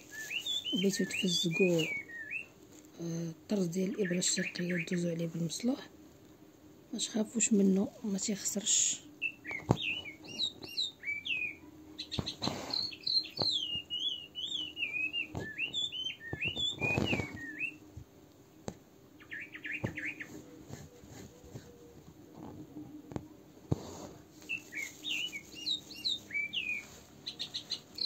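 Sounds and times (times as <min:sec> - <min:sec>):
fabric rustles: 0:00.0 - 0:02.0, 0:16.4 - 0:17.7, 0:20.0 - 0:27.2
songbird warbling and trilling: 0:00.0 - 0:02.5, 0:03.7 - 0:05.7, 0:09.2 - 0:17.8, 0:19.2 - 0:20.4, 0:24.4 - 0:28.0.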